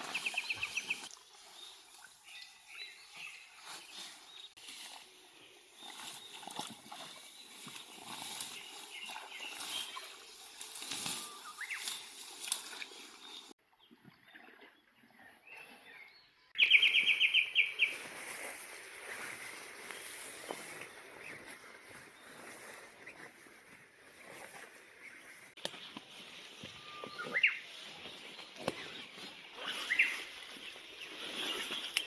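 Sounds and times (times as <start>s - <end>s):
outdoor rustling: 0.0s - 13.6s
bird trill: 26.7s - 27.7s.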